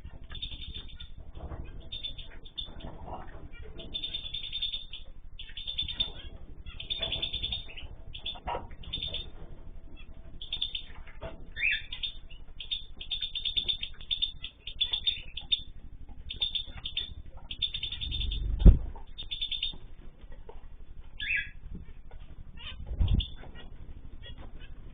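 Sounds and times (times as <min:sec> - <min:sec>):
small cage birds chirping: 0:00.0 - 0:24.9.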